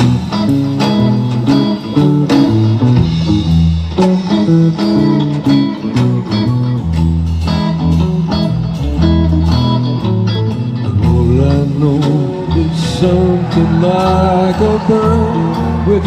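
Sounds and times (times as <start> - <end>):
deep bass line: 0.0 - 16.0
picked electric guitar: 0.0 - 16.0.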